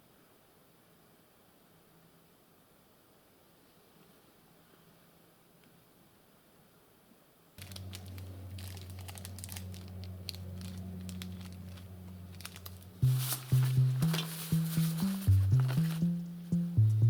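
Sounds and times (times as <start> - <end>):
crinkling and rustling: 7.6 - 16.2
low steady hum: 7.6 - 17.0
background music with stepping bass: 13.0 - 17.0.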